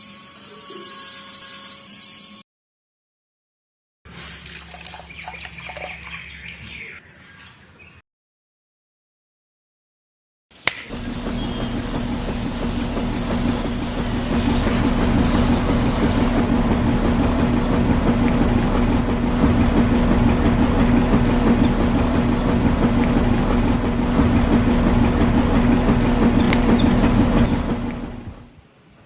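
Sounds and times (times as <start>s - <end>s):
small electric motor rattling hum: 10.9s - 28.6s.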